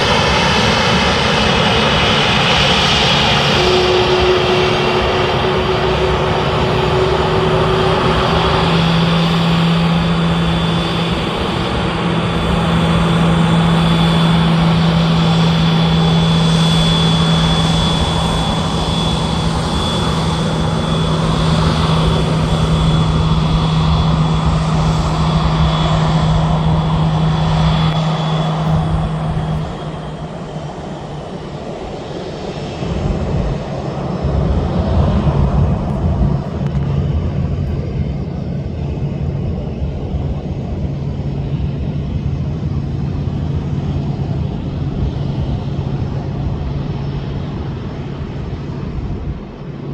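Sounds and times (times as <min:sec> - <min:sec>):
jet engines running: 0:00.0 - 0:49.9.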